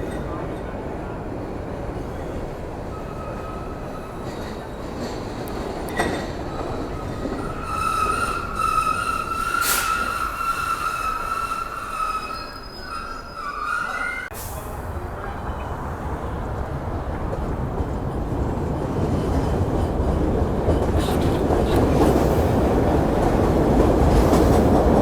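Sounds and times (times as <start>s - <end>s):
train rumbling along track: 0.0s - 25.0s
steel wheels squealing: 2.9s - 5.3s, 5.9s - 14.3s.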